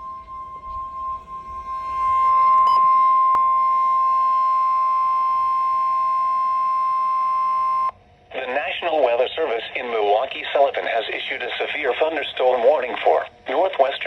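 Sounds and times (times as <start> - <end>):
high alarm beep: 0.0 - 7.9.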